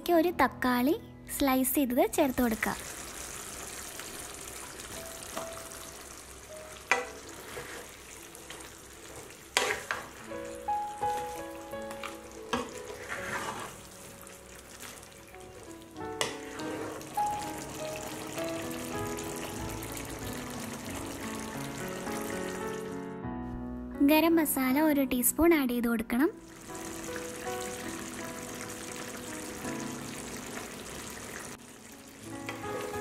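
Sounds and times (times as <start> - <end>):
soft background music: 0.0 - 33.0
food sizzling in frying pan: 2.1 - 23.0, 26.4 - 33.0.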